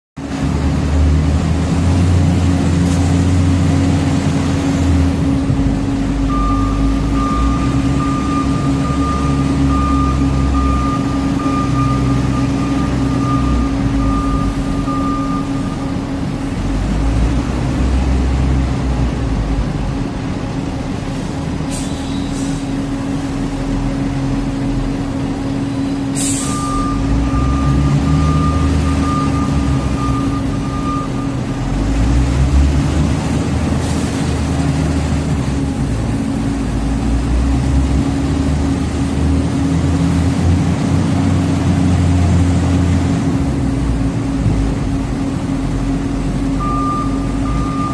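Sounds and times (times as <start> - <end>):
heavy truck engine running: 0.2 - 47.9
back-up alarm beeping: 6.2 - 16.2, 26.4 - 31.7, 46.5 - 47.9
short air hisses: 21.7 - 22.7, 26.2 - 26.6.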